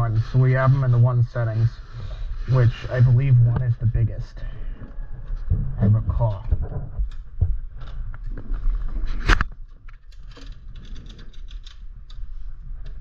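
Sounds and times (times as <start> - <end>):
bike shifter clicks and chain rattle: 9.3 - 13.0.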